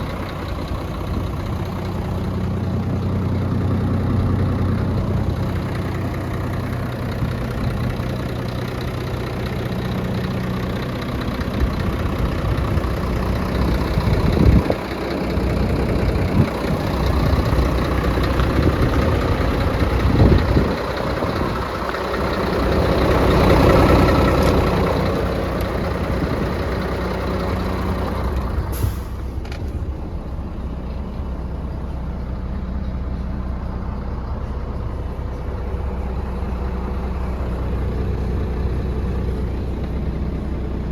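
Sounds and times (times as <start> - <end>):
diesel truck engine idling: 0.0 - 40.9.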